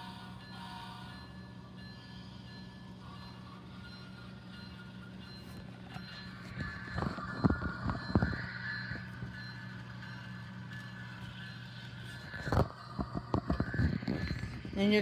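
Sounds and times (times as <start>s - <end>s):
model locomotive engine hum: 0.0s - 15.0s.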